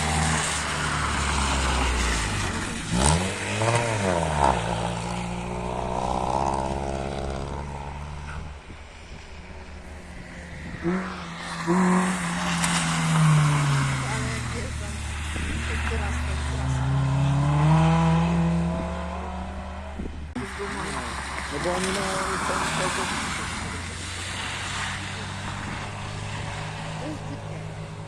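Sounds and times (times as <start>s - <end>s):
exhaust cracks: 0.0s - 28.0s
rally car engine revving: 0.0s - 28.0s.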